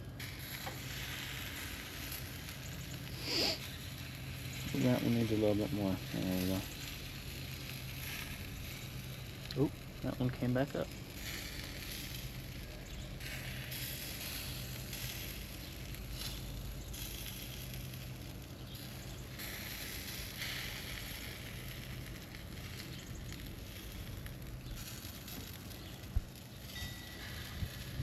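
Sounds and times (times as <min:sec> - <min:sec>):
burger patties sizzling on a grill: 0:00.0 - 0:28.0.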